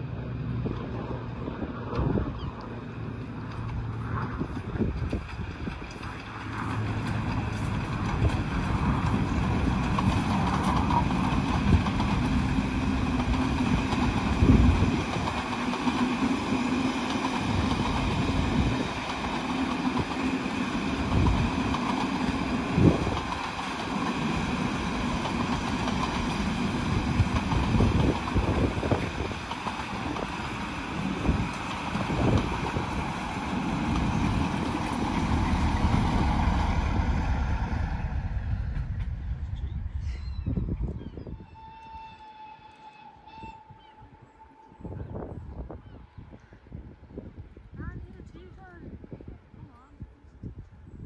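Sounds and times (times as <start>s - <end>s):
steam train passing: 0.0s - 48.3s
diesel locomotive: 0.0s - 49.8s
wind buffeting microphone: 0.1s - 42.2s, 43.3s - 51.0s
train wheels knocking: 3.4s - 37.3s.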